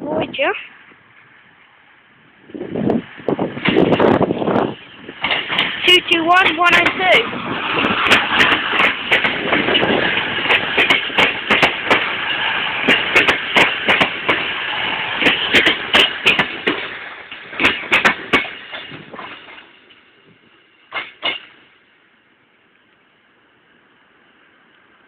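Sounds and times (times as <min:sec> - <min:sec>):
train rumble: 0:00.0 - 0:25.0
train wheels clicking over rail joints: 0:02.4 - 0:21.9.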